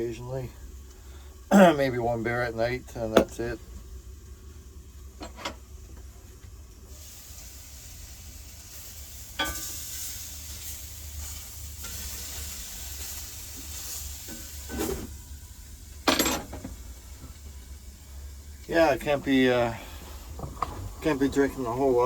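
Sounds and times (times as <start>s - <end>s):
steady low hum: 0.0s - 22.0s
food sizzling in a hot pan: 3.8s - 20.4s.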